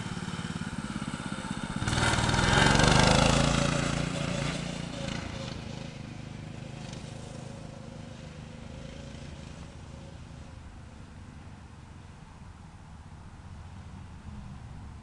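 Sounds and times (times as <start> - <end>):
dirt bike engine riding away: 0.0 - 11.7.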